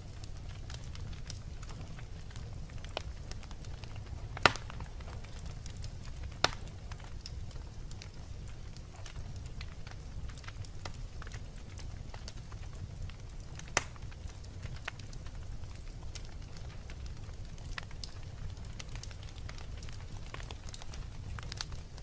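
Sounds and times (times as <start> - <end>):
wood fire crackling: 0.0 - 22.0
sharp fire pops: 0.1 - 22.0.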